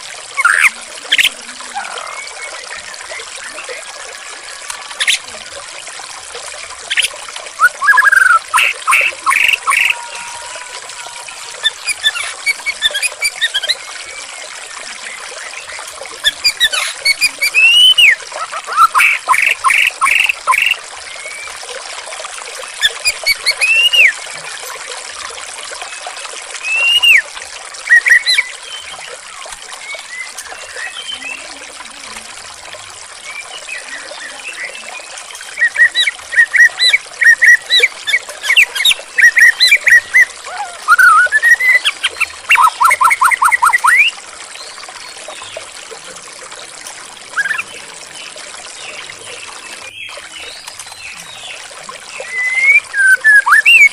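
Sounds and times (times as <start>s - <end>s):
water trickling: 0.0s - 53.9s
songbird singing: 6.9s - 21.6s, 29.8s - 31.6s, 33.2s - 45.7s, 47.4s - 53.9s.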